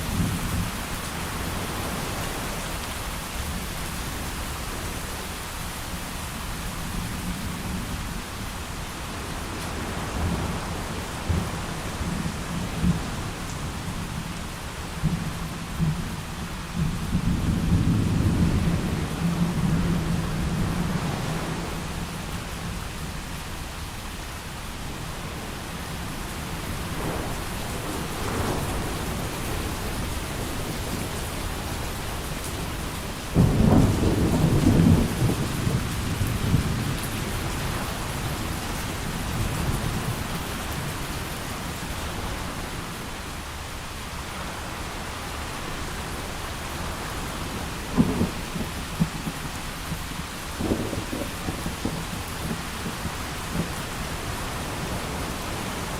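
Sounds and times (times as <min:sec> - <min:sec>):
heavy rain falling: 0:00.0 - 0:55.9
thunder clap and rumble: 0:15.0 - 0:22.1, 0:26.3 - 0:42.5, 0:46.1 - 0:55.9.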